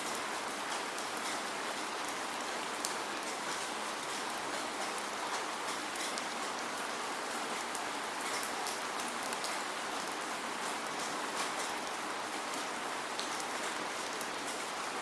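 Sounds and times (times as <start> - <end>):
steady rain: 0.0 - 15.0
raindrop ticks: 2.8 - 6.6.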